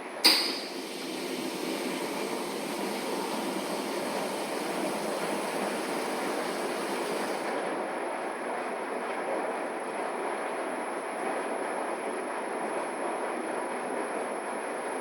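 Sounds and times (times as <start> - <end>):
washing machine rumbling: 0.0 - 7.7.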